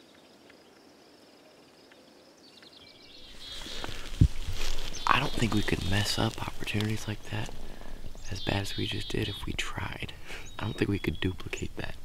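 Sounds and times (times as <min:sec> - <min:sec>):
rustling noise: 0:03.3 - 0:08.3
faint high bird chirps: 0:08.1 - 0:11.6.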